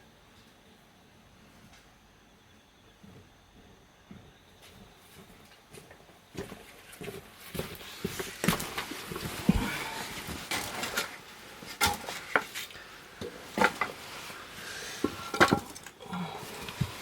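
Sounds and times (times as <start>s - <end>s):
firewood cracking and knocking: 4.8s - 14.1s, 15.0s - 17.0s.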